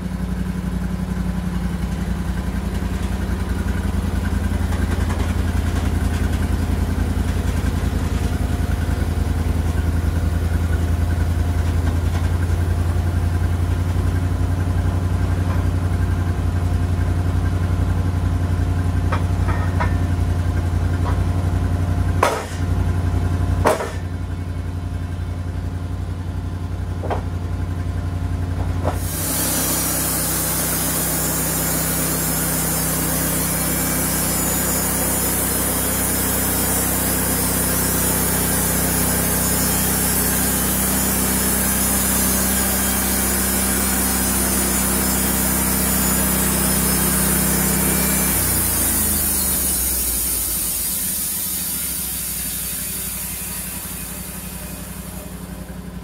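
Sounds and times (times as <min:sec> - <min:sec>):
sawmill engine running: 0:00.0 - 0:56.0
sharp knocks: 0:22.2 - 0:22.7, 0:23.6 - 0:24.1
sawdust blowing out hissing: 0:29.0 - 0:55.9.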